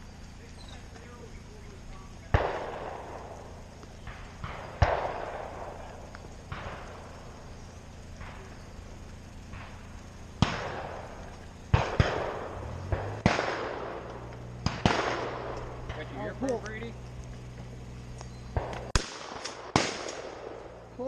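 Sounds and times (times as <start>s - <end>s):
echoing shotgun shots: 2.3s - 8.6s, 9.5s - 16.0s, 18.5s - 20.8s.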